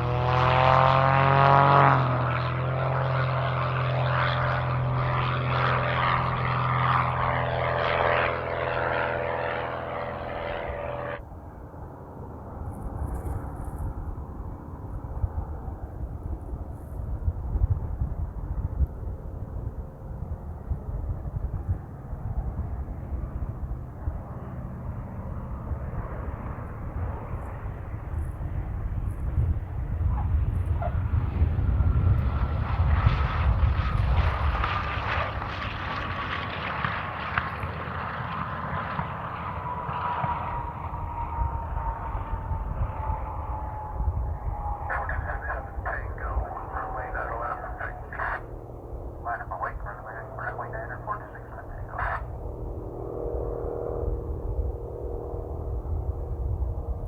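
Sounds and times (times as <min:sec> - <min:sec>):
piston aircraft engines rumbling: 0:00.0 - 0:57.0.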